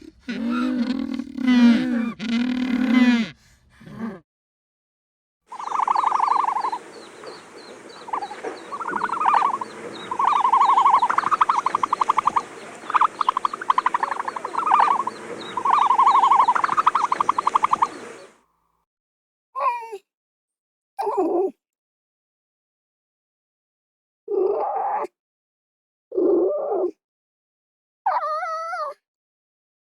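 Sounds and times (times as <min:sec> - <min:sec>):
animal call with pulsing trill: 0:00.2 - 0:03.4, 0:05.5 - 0:18.3
chorus of higher chirps: 0:05.5 - 0:18.4.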